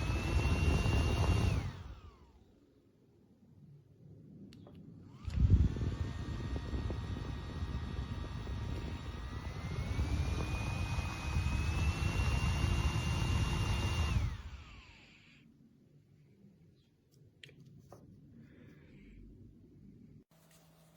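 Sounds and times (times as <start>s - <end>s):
handheld fan motor whine: 0.0s - 2.4s, 5.1s - 15.5s.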